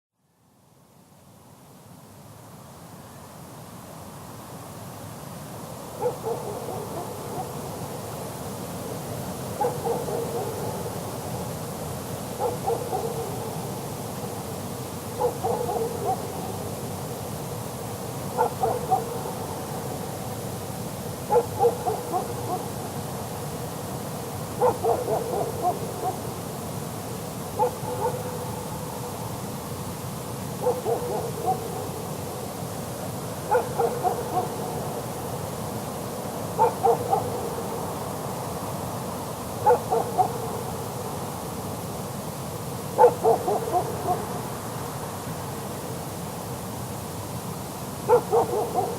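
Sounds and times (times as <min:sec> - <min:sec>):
steady background hiss: 0:00.2 - 0:48.9
distant dog barking: 0:06.0 - 0:07.8, 0:09.6 - 0:11.0, 0:12.4 - 0:13.8, 0:15.1 - 0:16.7, 0:18.4 - 0:20.0, 0:21.2 - 0:22.8, 0:24.6 - 0:26.4, 0:27.6 - 0:29.0, 0:30.6 - 0:32.1, 0:33.4 - 0:35.0, 0:36.5 - 0:37.8, 0:39.6 - 0:41.2, 0:43.0 - 0:44.5, 0:48.1 - 0:48.9.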